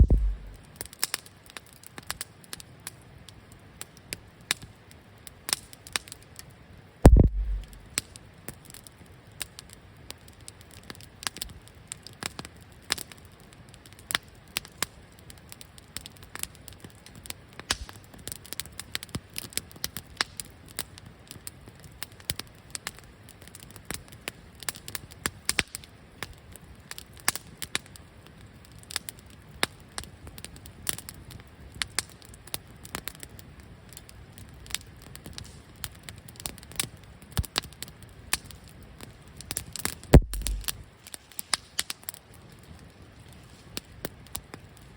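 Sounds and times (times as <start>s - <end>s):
low thump: 0.0s - 0.6s, 7.1s - 7.8s, 40.2s - 40.8s
campfire crackling and popping: 0.0s - 6.4s, 7.1s - 44.9s.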